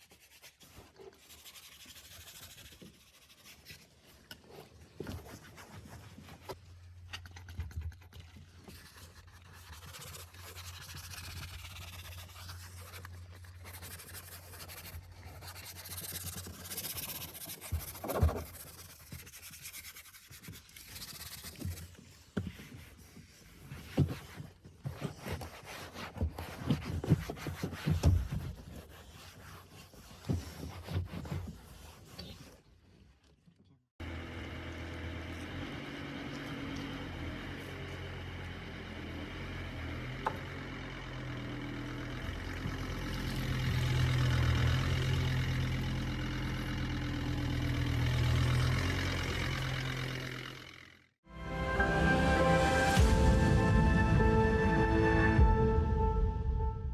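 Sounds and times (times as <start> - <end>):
brushing car interior surfaces: 0.0 - 6.7, 8.4 - 32.6, 41.3 - 50.9.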